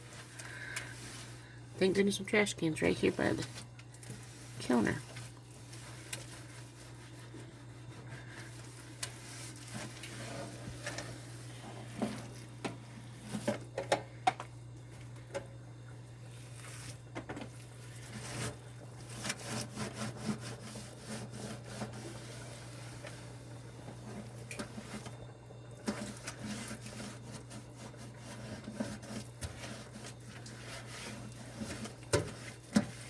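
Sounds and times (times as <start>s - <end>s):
steady low hum: 0.0s - 33.0s
cloth rag wiping hard surface: 4.2s - 11.9s.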